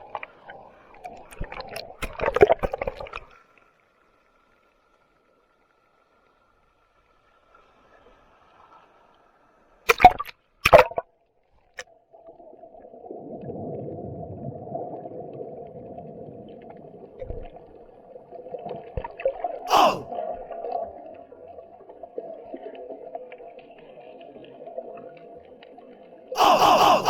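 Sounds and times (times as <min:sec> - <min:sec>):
muffled underwater noise: 0:19.7 - 0:20.1, 0:26.4 - 0:27.0.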